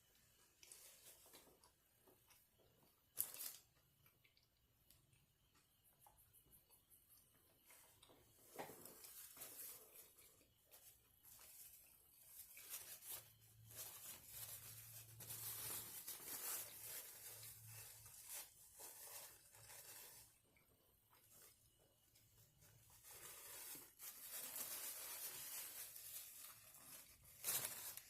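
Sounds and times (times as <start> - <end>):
food wrapper crinkling: 11.4 - 20.4, 22.8 - 28.0.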